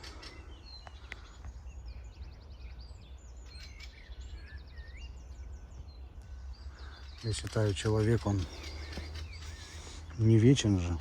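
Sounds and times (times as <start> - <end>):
small birds chirping: 0.0 - 11.0
high bird trills: 6.2 - 10.2.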